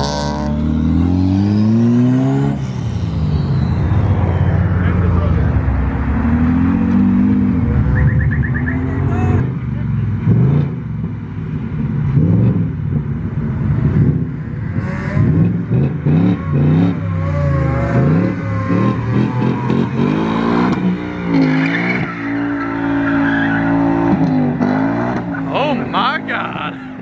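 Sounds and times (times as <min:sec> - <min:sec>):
car engine revving: 0:00.0 - 0:27.0
tyre squeal: 0:21.3 - 0:24.3.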